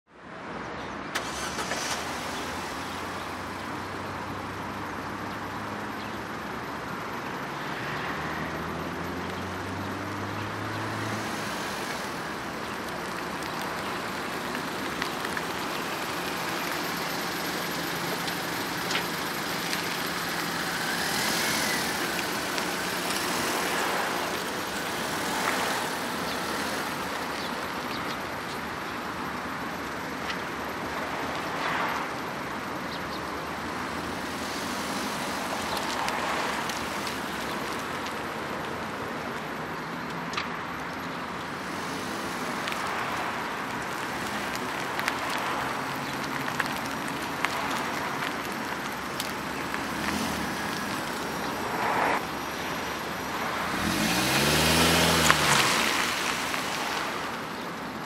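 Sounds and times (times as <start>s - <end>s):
car engine running: 8.8s - 38.4s.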